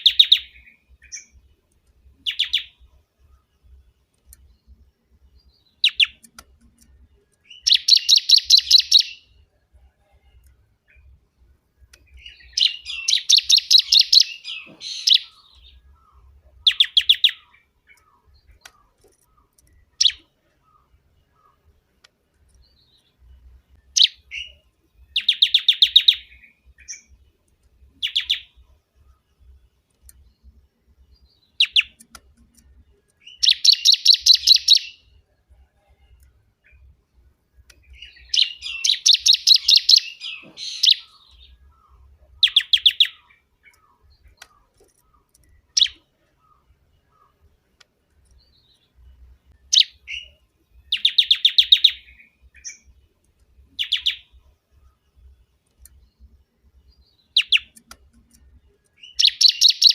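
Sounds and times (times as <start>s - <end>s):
bird singing fast repeated high notes: 0.0s - 1.4s, 5.5s - 6.3s, 7.5s - 9.4s, 12.1s - 19.0s, 23.8s - 27.1s, 31.4s - 32.2s, 33.2s - 35.1s, 37.8s - 43.5s, 49.5s - 52.9s, 59.0s - 59.9s.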